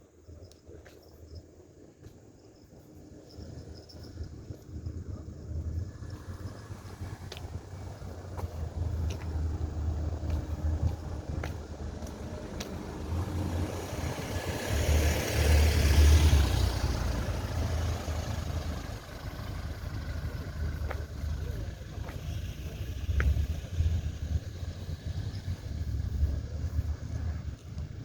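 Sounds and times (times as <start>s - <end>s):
wind rumble on microphone: 0.3s - 28.0s
vehicle passing: 3.8s - 28.0s.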